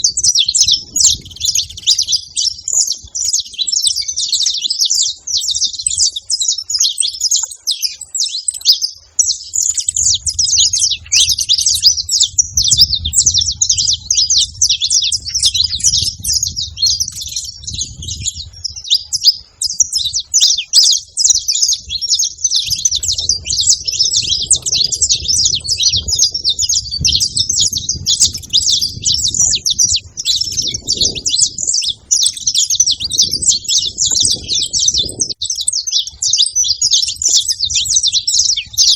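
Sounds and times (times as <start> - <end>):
finches chirping: 0.0 - 38.9
low rumble: 10.0 - 18.8, 21.9 - 31.9.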